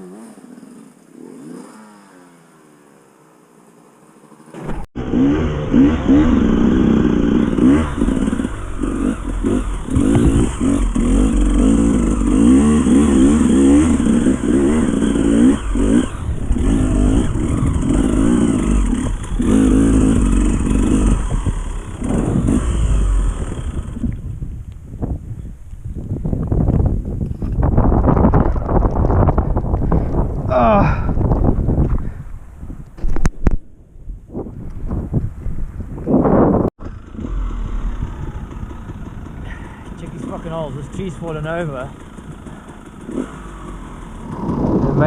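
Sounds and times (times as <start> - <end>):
dirt bike engine revving: 0.0 - 2.8, 4.2 - 24.1, 36.8 - 45.0
bike knocks and rattles: 9.4 - 11.8.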